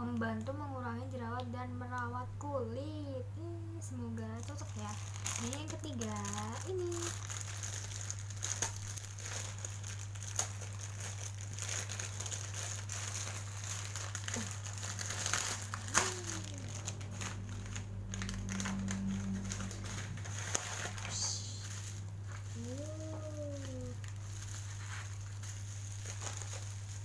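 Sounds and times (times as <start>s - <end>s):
plastic packaging crinkling: 4.2s - 27.0s
low hum: 6.2s - 27.0s.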